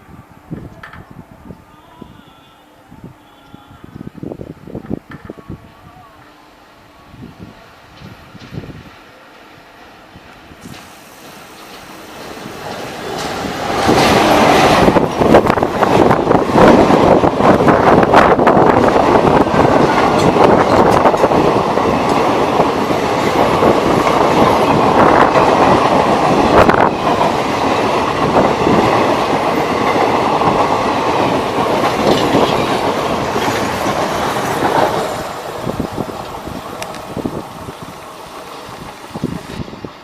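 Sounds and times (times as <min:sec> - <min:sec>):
train wheels clattering over rail joints: 0:10.6 - 0:39.6.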